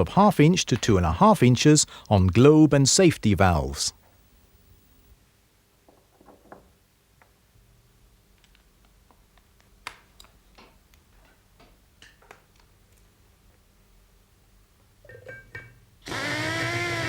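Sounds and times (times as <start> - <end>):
faint clicks and taps: 8.3 - 13.6.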